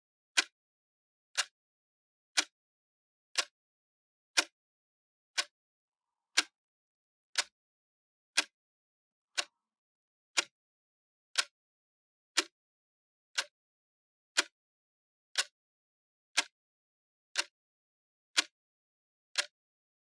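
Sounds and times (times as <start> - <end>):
clock ticking: 6.4 - 6.6.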